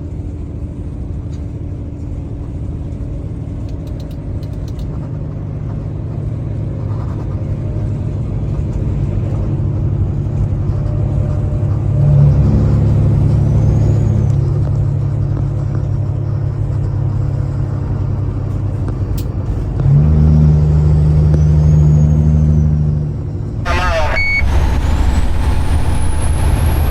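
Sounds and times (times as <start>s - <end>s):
diesel truck engine rumbling: 0.0s - 26.9s.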